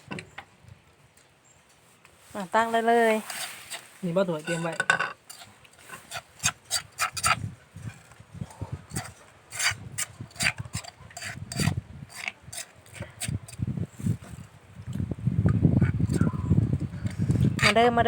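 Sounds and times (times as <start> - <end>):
utensils scraping a mortar: 3.2 - 14.4, 17.0 - 18.0.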